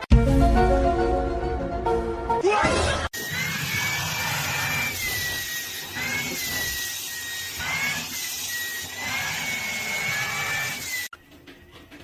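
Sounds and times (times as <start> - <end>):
small electric motor whining: 3.2 - 11.1.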